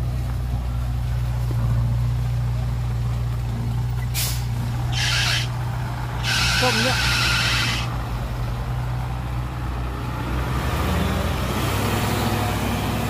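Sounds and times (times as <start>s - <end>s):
diesel truck engine running: 0.0s - 13.0s
air brake hissing: 4.1s - 5.5s, 6.2s - 7.9s.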